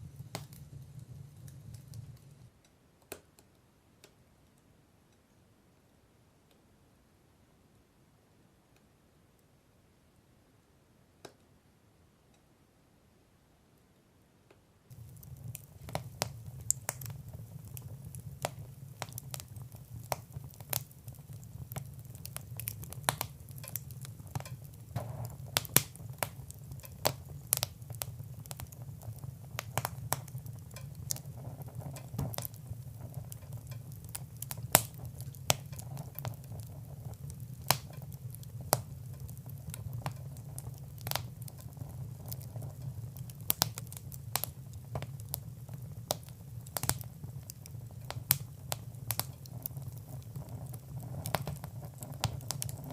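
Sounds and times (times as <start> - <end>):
wood fire crackling: 0.0 - 4.2, 14.9 - 52.9.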